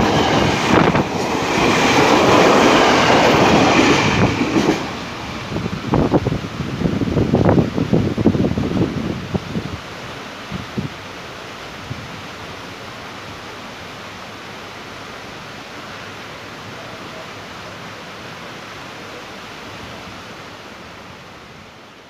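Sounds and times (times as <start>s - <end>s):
wind rushing: 0.0s - 9.9s
train rumbling along track: 0.0s - 22.0s.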